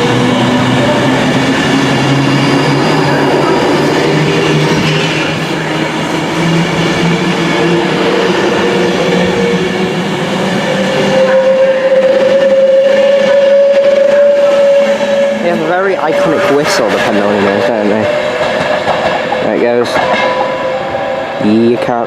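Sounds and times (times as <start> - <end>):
train traction motors whining: 0.0 - 22.0.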